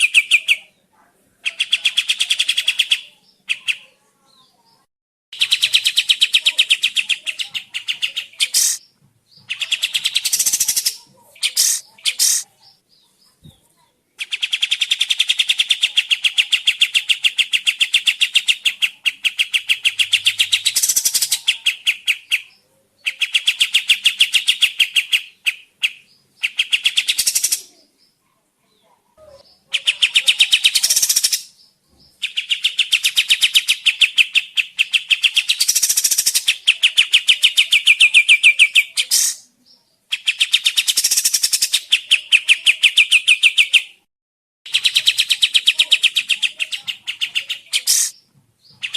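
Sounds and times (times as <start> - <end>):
bird trilled chattering: 0.0 - 0.6, 1.4 - 3.9, 5.3 - 12.7, 14.2 - 27.8, 29.4 - 39.5, 40.1 - 44.0, 44.7 - 48.2.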